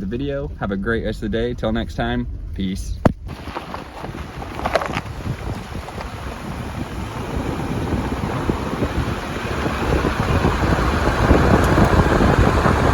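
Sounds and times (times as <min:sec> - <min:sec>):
car road and wind noise: 0:00.0 - 0:12.9.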